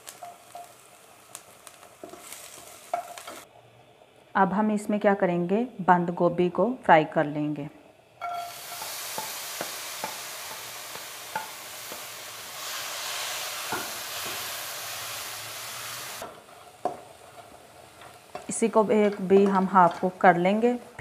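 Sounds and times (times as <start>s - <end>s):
cabbage sizzling in a pan: 0.0s - 3.5s, 8.2s - 20.9s.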